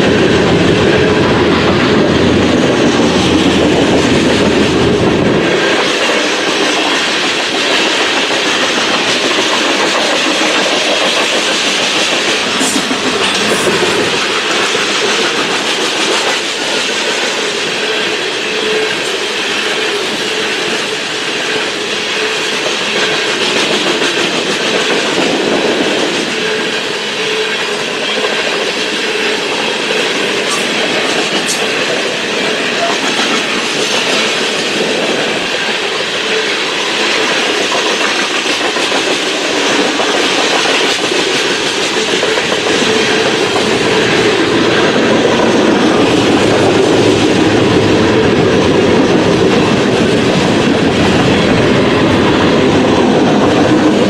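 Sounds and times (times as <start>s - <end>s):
freight train cars rolling: 0.0s - 54.0s
wheels clicking over rail joints: 0.0s - 54.0s.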